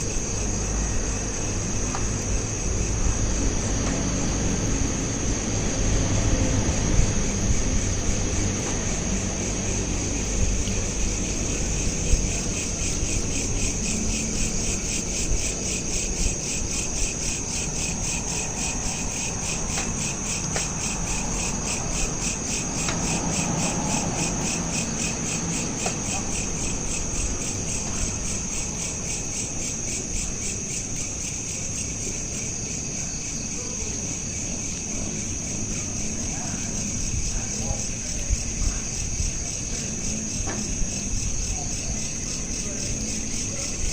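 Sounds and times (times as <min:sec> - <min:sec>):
crickets chirping: 0:00.0 - 0:43.9.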